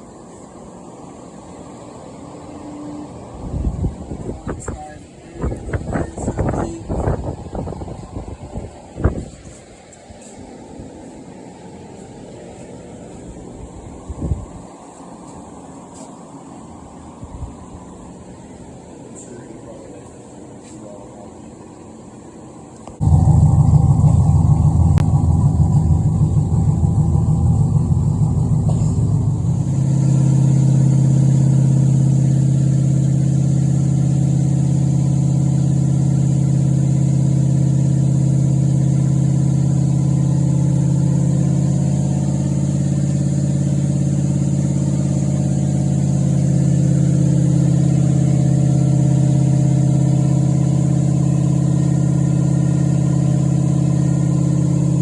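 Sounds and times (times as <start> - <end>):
car engine starting and idling: 22.9 - 55.0.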